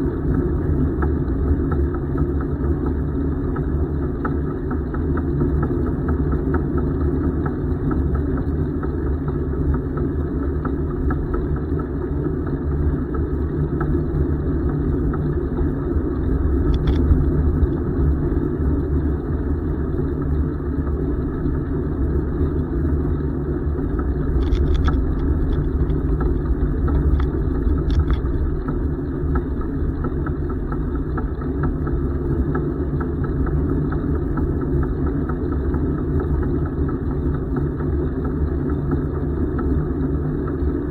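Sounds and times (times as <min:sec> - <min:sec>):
wind on microphone: 0:21.0 - 0:33.6.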